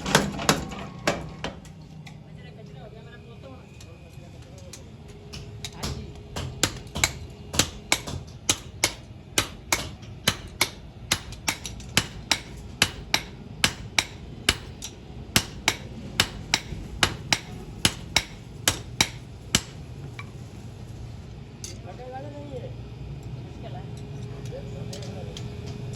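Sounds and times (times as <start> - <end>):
hammer striking steel on anvil: 5.3 - 19.8.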